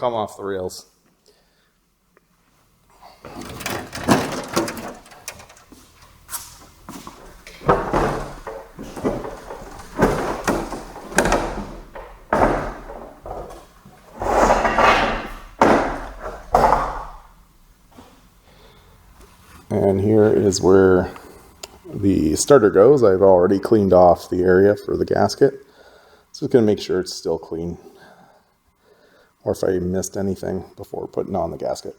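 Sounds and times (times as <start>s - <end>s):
metal parts and tools knocking: 3.4s - 5.8s.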